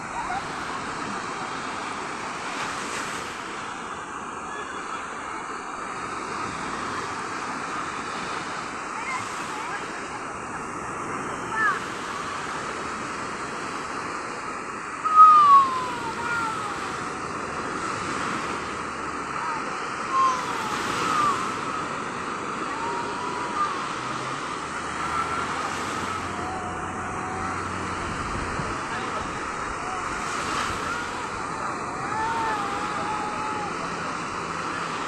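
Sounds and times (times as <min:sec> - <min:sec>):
sea surf washing: 0:00.0 - 0:35.0
wind: 0:00.0 - 0:35.0
short high falling calls: 0:15.0 - 0:16.1.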